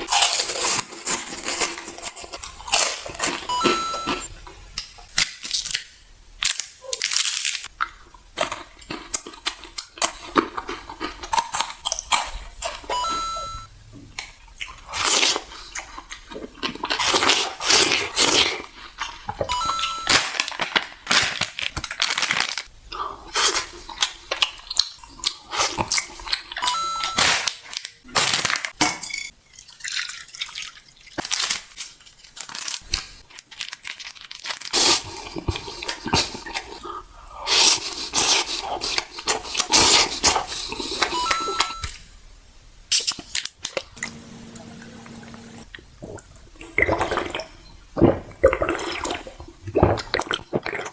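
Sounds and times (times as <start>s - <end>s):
crunching bites and mouth clicks: 0.0s - 13.1s, 31.2s - 42.0s, 45.6s - 50.9s
short high electronic beep: 3.5s - 4.2s, 12.9s - 13.7s, 19.5s - 20.2s, 26.6s - 27.3s, 41.2s - 41.9s.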